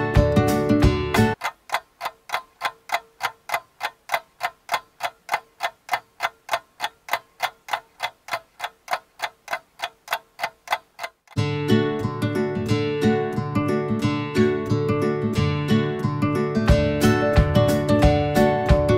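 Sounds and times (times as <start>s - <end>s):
clock ticking: 1.1s - 11.4s.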